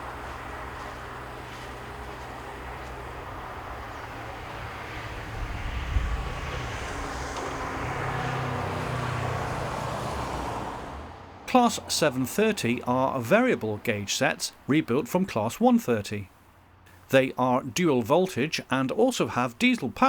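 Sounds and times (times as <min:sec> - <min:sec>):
train rumbling past: 0:00.0 - 0:14.6.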